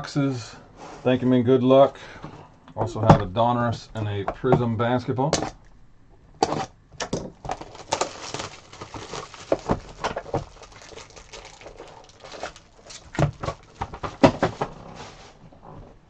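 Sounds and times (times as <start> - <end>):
plastic and foil crinkling: 7.4 - 15.3.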